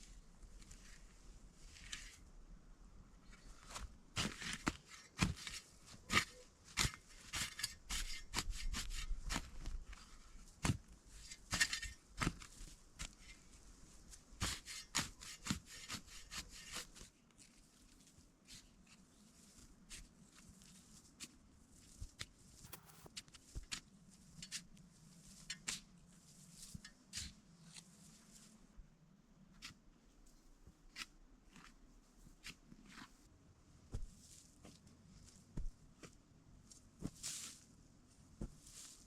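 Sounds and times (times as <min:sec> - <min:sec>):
scraping rustles: 0:22.6 - 0:23.1.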